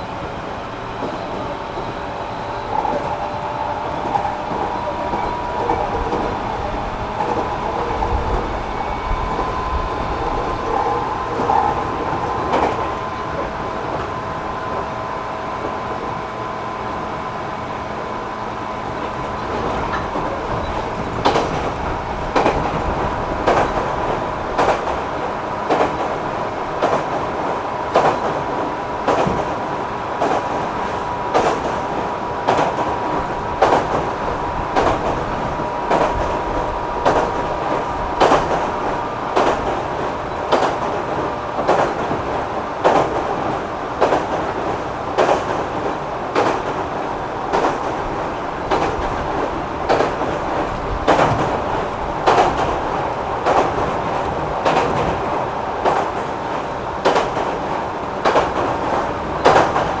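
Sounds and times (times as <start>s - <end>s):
train rumble: 0.0s - 60.0s
wheels clicking over rail joints: 19.0s - 25.0s, 30.2s - 46.8s, 47.5s - 55.2s, 55.8s - 60.0s.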